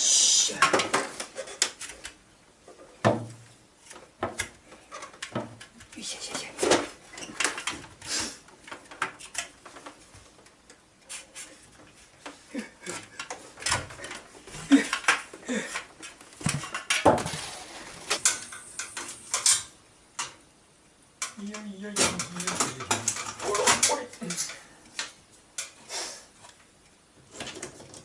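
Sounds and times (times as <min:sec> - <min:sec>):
short hiss: 0:00.0 - 0:00.6, 0:08.0 - 0:08.4, 0:25.8 - 0:26.4
tools and hard parts clattering: 0:22.0 - 0:24.6.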